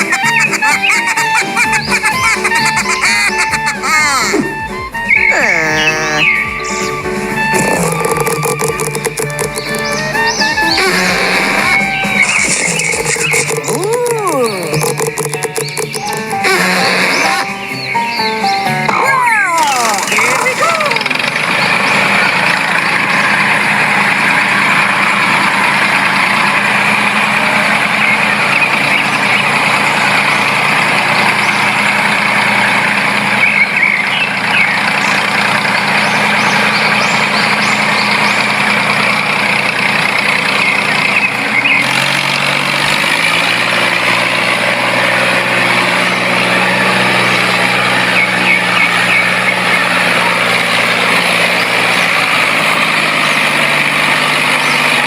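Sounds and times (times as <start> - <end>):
mini tractor humming: 0.0 - 55.0.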